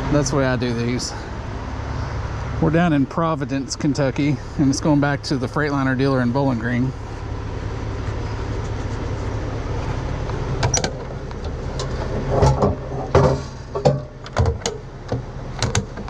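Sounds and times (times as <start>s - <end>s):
diesel truck engine idling: 0.0s - 16.0s
metal knocks and clanks: 10.6s - 16.0s.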